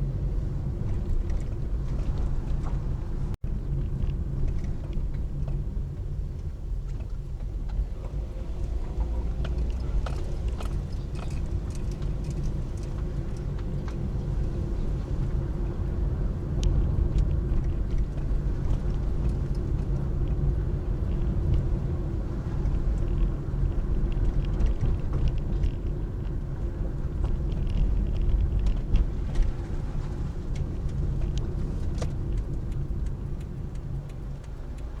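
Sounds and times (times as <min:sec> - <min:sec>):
car engine rumble: 0:00.0 - 0:35.0
small clicks and rattles: 0:06.4 - 0:14.2, 0:22.5 - 0:35.0.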